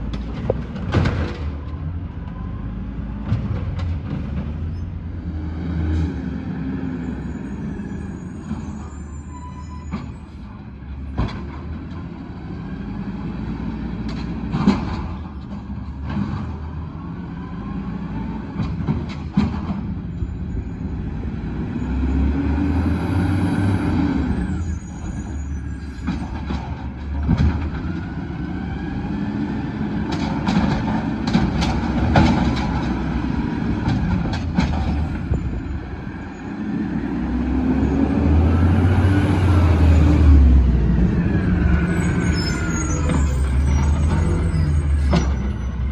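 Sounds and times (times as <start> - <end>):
knocks and clanks: 0.0 - 1.9, 3.2 - 4.7, 14.0 - 16.8, 18.6 - 20.0, 25.9 - 28.1, 30.0 - 35.6
garbage truck engine revving: 21.0 - 45.9.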